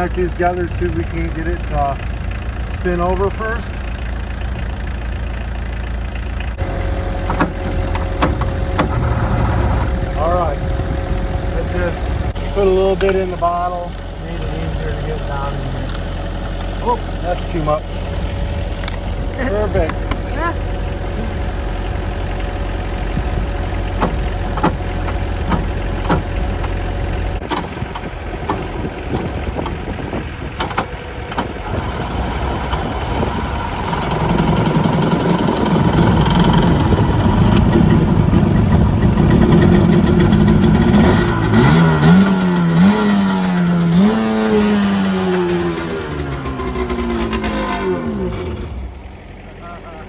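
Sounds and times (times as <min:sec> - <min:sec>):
jet ski engine revving: 0:06.5 - 0:50.0.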